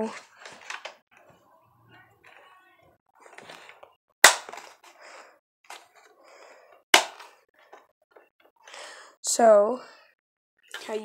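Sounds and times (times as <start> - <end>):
sharp plastic clacks: 3.4 - 4.9.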